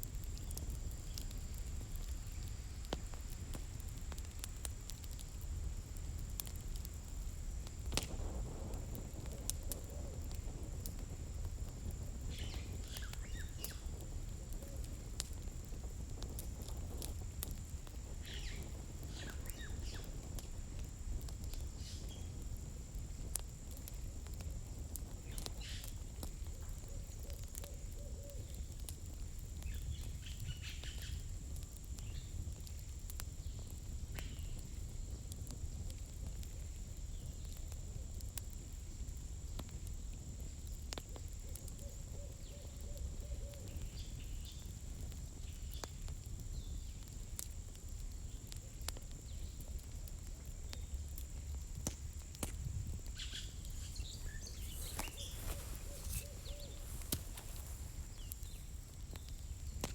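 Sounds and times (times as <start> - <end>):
fire low rumble: 0.0 - 59.9
firewood crackling and popping: 0.0 - 59.9.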